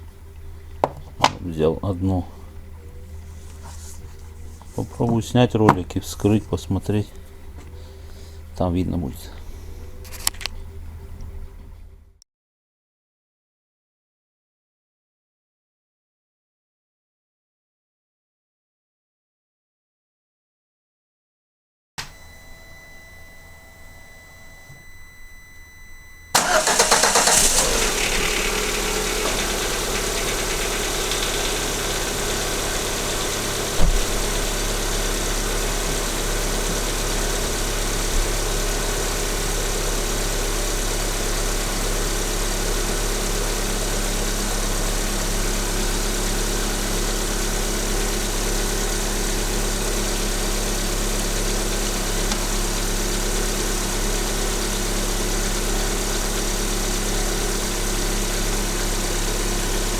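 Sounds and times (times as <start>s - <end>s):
car engine starting and idling: 0.0s - 12.2s, 24.4s - 59.9s
sharp thump: 33.7s - 34.3s.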